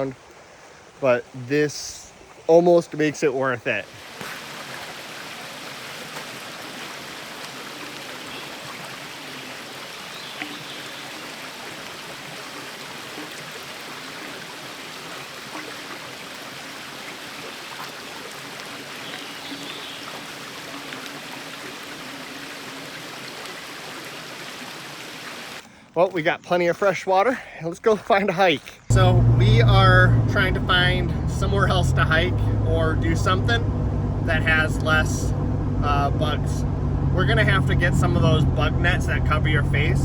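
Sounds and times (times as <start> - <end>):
river water rushing: 3.8 - 25.6.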